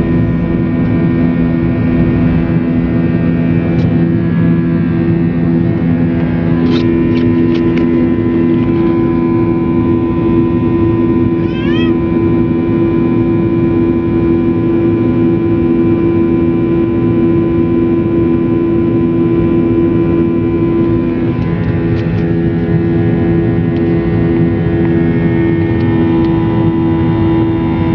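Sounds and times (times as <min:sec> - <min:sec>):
airliner engines droning: 0:00.0 - 0:27.9
rising cry-like whine: 0:06.6 - 0:13.6.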